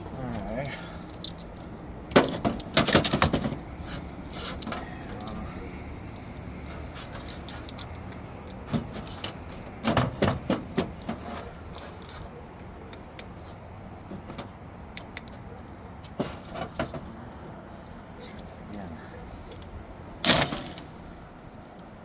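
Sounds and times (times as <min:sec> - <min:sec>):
metal parts clicking and knocking: 0:01.0 - 0:05.4, 0:06.1 - 0:13.5, 0:19.5 - 0:21.0.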